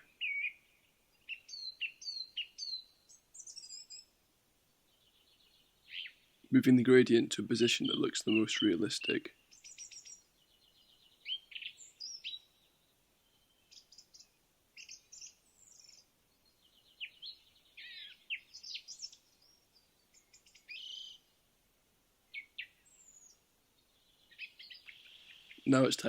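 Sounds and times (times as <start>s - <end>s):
faint birdsong: 0.0s - 26.0s.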